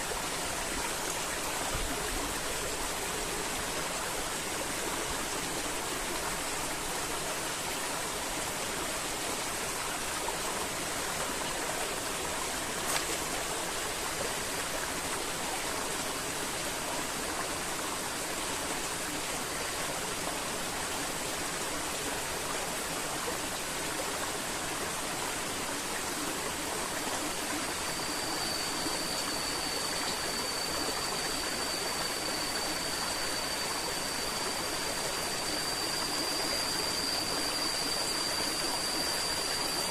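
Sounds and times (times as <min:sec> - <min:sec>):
thin high tone: 0:25.5 - 0:39.9.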